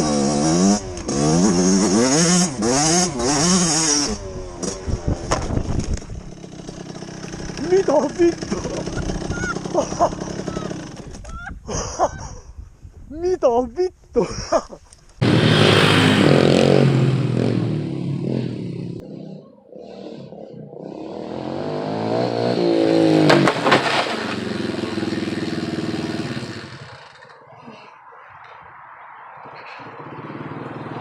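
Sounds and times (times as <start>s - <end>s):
dirt bike engine revving: 0.0s - 11.2s, 15.2s - 27.4s.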